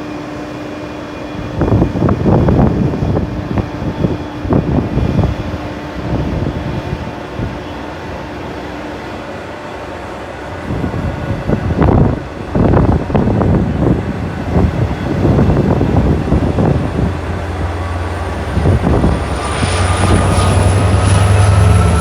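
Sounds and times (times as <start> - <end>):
train passing with clattering: 0.0 - 22.0
steady low rumble: 10.8 - 22.0
rising whine: 12.6 - 22.0.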